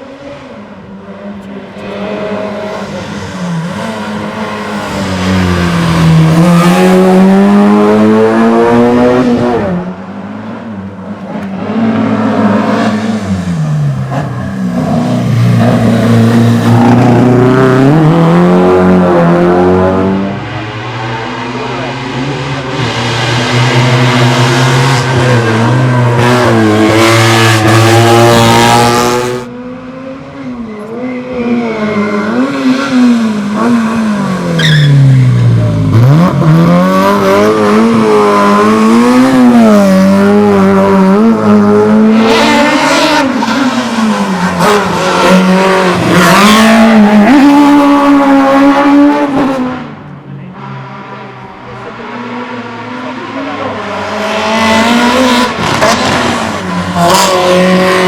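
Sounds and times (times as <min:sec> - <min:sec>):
racing car engine revving: 0:00.0 - 0:58.0.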